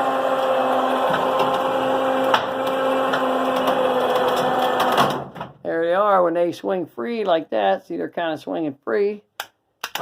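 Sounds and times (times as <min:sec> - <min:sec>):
electric winch motor humming: 0:00.0 - 0:05.2.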